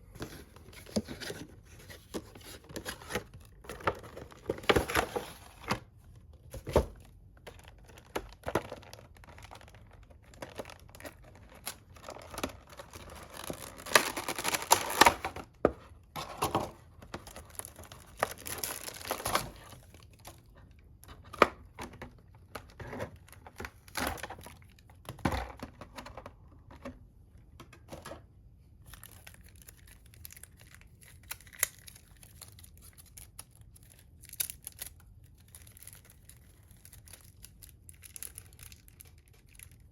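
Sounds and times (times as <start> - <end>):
packaging rustling: 0.1 - 20.5
packaging crinkling and tearing: 0.2 - 25.0, 28.8 - 39.9.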